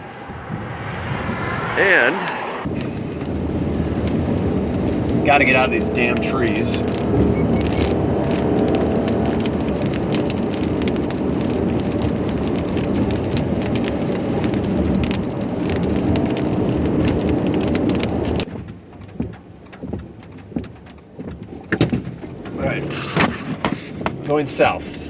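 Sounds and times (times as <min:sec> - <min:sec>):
car road and engine noise: 0:00.0 - 0:25.0
ticks: 0:18.4 - 0:22.6.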